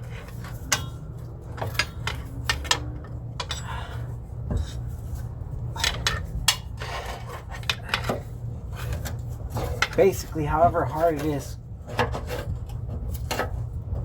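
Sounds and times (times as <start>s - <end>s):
light metal clinks and knocks: 0.0s - 4.9s
steady low hum: 0.0s - 14.0s.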